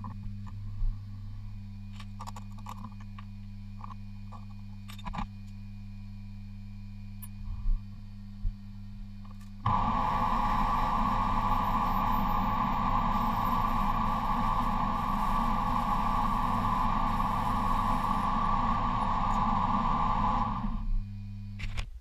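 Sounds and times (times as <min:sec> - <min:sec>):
workshop machine rushing noise: 0:09.6 - 0:20.9.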